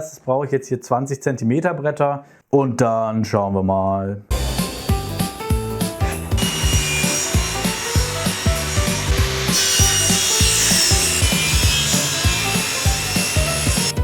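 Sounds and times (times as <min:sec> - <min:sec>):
background music with steady beat: 0:04.3 - 0:14.0
saw cutting wood: 0:04.3 - 0:14.0.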